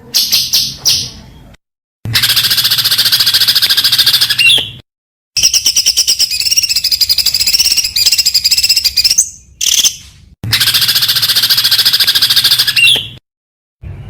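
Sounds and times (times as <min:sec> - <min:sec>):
songbird high-pitched trills: 0:05.4 - 0:10.0, 0:10.6 - 0:13.2.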